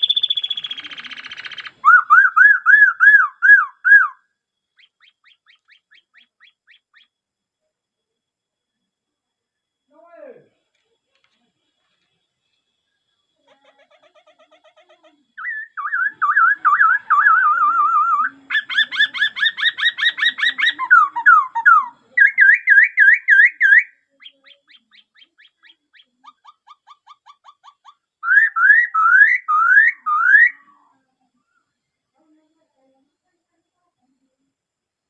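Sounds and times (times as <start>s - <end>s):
bird singing whistled phrases: 0.0s - 4.2s, 15.4s - 26.7s, 28.2s - 30.8s.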